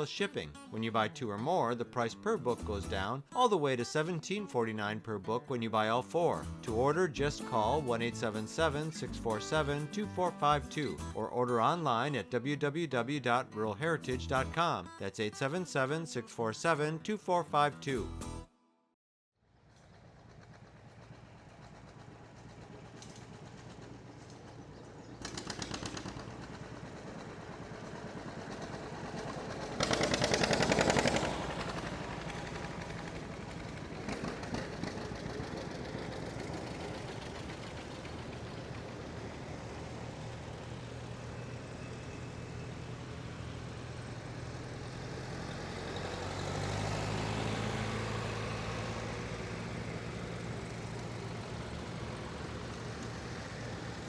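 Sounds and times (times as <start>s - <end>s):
tractor engines driving past: 0.0s - 18.1s, 19.5s - 54.0s
rapid engine rattle: 19.6s - 54.0s.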